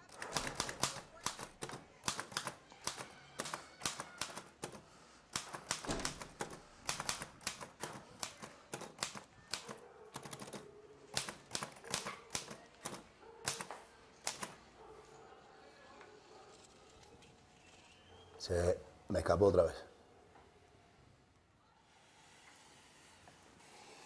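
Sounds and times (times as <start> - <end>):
typewriter key strikes: 5.4 - 9.2.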